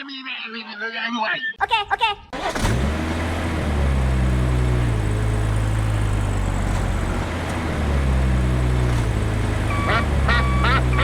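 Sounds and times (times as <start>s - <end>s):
engine humming: 2.4s - 11.0s.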